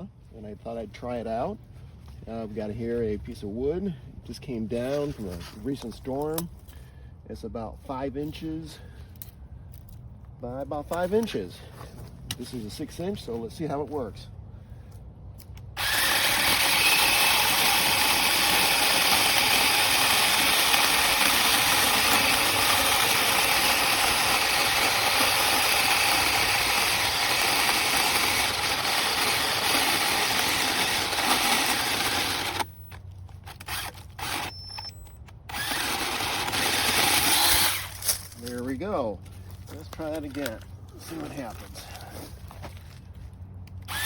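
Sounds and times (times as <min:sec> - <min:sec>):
chainsaw cutting through log: 0:15.8 - 0:32.7, 0:33.5 - 0:34.6, 0:35.5 - 0:38.1.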